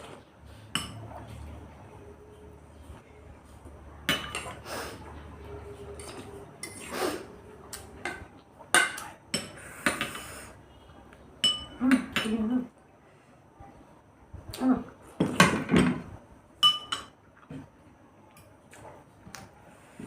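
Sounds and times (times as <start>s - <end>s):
cutlery clinking on dishes: 0.7s - 1.1s, 4.0s - 4.6s, 8.0s - 10.4s, 11.4s - 12.4s, 16.6s - 17.2s.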